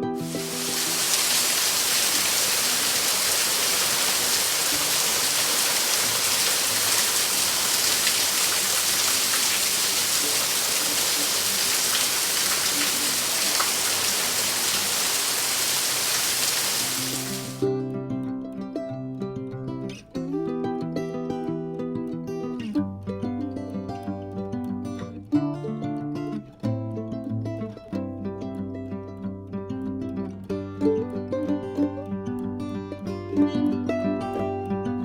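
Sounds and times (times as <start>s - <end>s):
steady rain: 0.2s - 17.6s.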